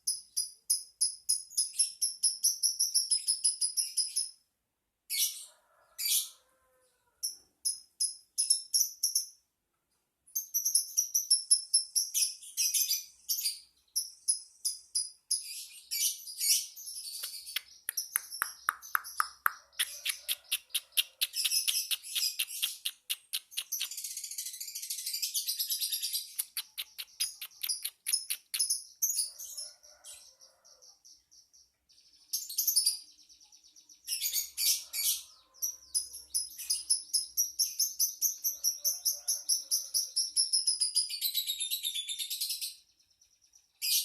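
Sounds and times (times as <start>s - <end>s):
lovebird chattering trill: 17.3s - 24.2s, 26.3s - 28.9s.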